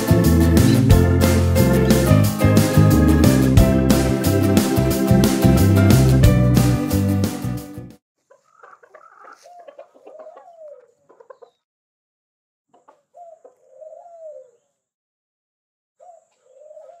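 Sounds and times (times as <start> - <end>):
faint bird calls: 8.3 - 11.6, 12.7 - 14.8, 16.0 - 17.0.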